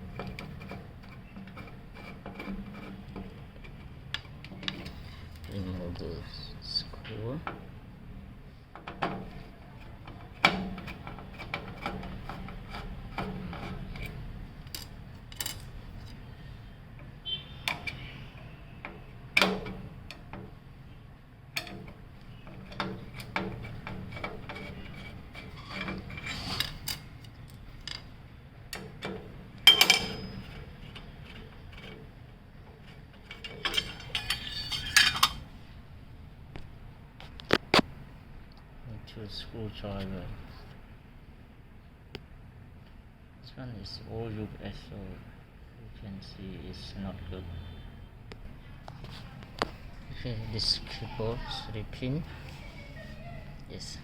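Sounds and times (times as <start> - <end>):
metal rattles: 28.7 - 35.5.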